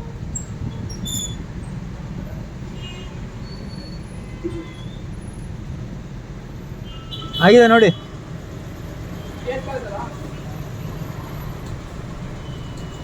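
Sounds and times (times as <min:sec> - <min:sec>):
car interior rumble: 0:09.3 - 0:13.0.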